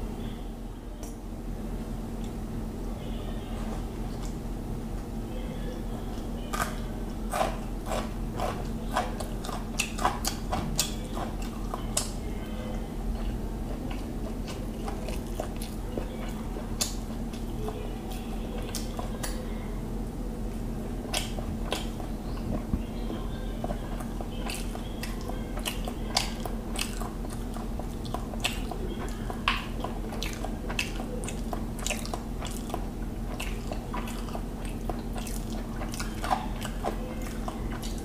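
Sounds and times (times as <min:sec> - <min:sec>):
low electrical hum: 0:00.0 - 0:38.0
chewing raw carrot crunches: 0:06.5 - 0:12.2.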